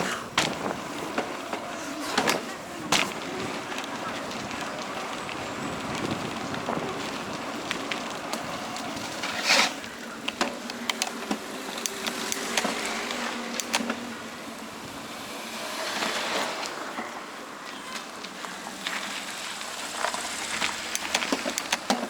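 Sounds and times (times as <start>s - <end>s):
bicycle rolling on track: 0.0s - 22.0s
bicycle jolt or scrape: 9.1s - 9.9s
clicks and rattles: 20.4s - 22.0s.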